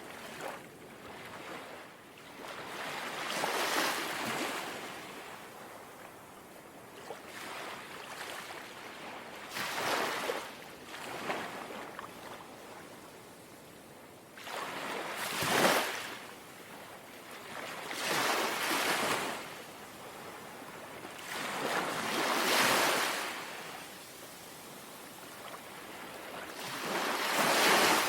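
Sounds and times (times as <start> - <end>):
gentle waves washing on shore: 14.4 - 28.0.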